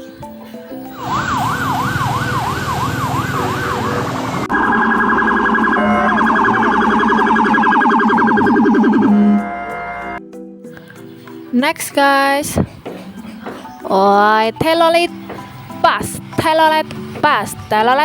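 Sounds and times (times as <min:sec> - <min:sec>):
toy police siren: 0:01.0 - 0:10.2.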